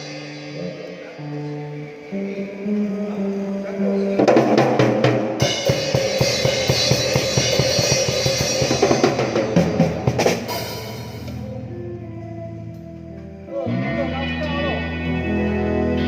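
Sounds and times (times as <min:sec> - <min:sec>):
cymbals crashing: 0:00.0 - 0:01.8, 0:04.3 - 0:11.4.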